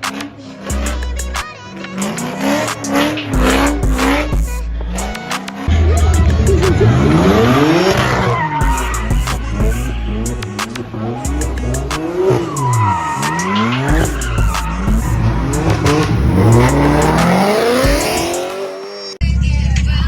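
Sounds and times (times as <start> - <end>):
car engines revving: 0.0 - 19.2
deep bass music: 0.7 - 1.5, 2.5 - 19.4
tyres squealing: 11.6 - 18.4.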